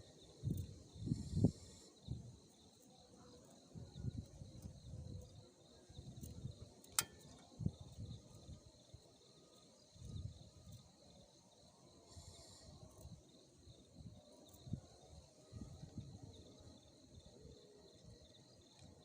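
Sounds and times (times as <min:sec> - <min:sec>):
insects chirring: 0:00.0 - 0:19.0
sharp click: 0:06.8 - 0:07.4.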